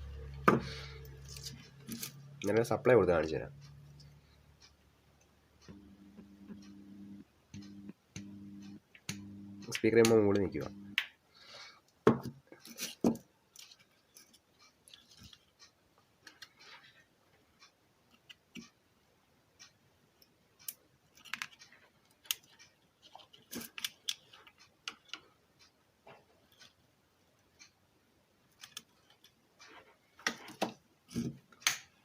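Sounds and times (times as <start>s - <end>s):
small parts clicking and tapping: 0.2s - 2.6s, 7.5s - 11.2s, 11.9s - 18.8s, 19.6s - 26.8s, 28.5s - 32.0s.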